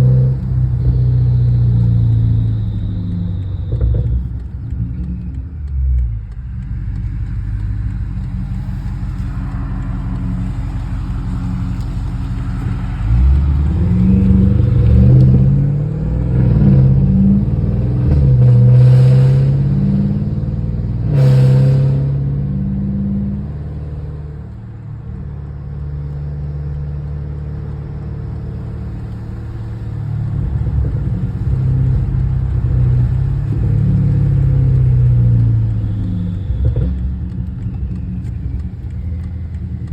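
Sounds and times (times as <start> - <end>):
car exhaust drone: 0.0 - 39.9.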